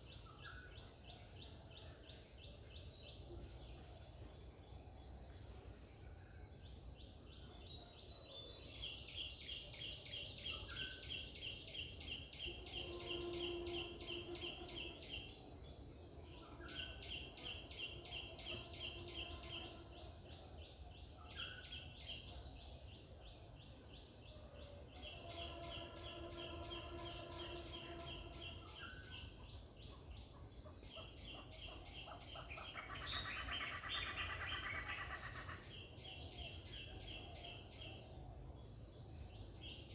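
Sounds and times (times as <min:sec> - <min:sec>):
insect trills: 0:10.4 - 0:20.8, 0:23.2 - 0:29.7, 0:32.0 - 0:39.9
high insect buzz: 0:10.8 - 0:20.4, 0:24.6 - 0:29.3.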